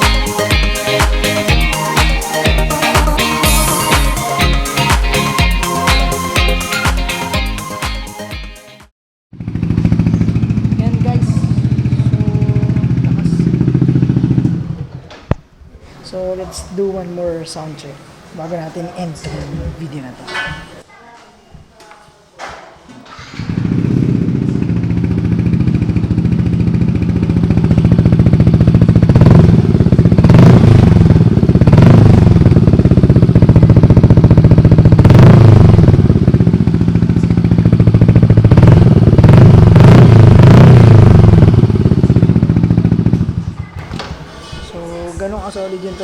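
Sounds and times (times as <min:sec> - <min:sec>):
scooter engine idling and revving: 0:00.0 - 0:07.2, 0:09.3 - 0:15.1, 0:23.2 - 0:44.3.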